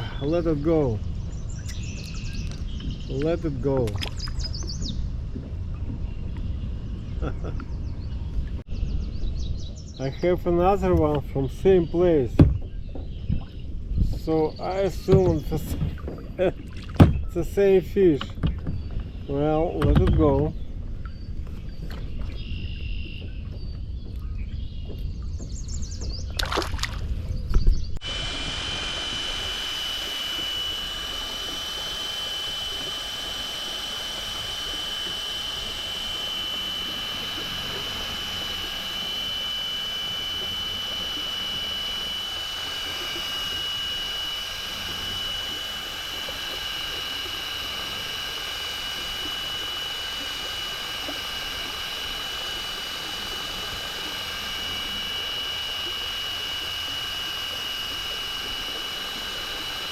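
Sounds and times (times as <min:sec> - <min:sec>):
cordless drill whining: 0:28.0 - 0:59.9.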